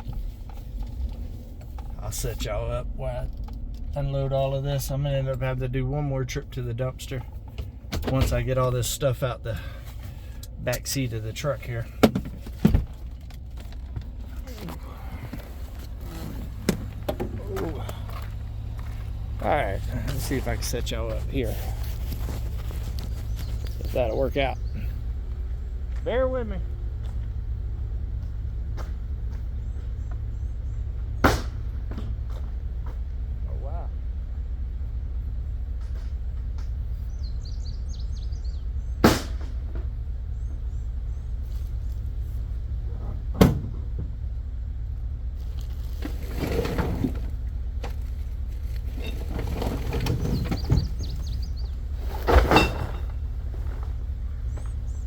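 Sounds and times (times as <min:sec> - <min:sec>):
low rumble: 0:00.0 - 0:10.5
steady low rumble: 0:00.0 - 0:46.4
trash clattering and knocking: 0:11.9 - 0:24.0, 0:45.4 - 0:54.8
loud thump: 0:43.3 - 0:44.2.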